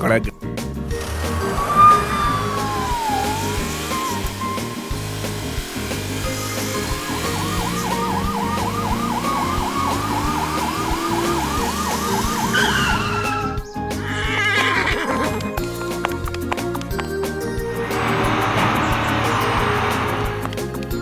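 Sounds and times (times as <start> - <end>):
background music with steady beat: 0.0 - 21.0
electronic siren yelping: 1.0 - 5.0, 6.3 - 13.7.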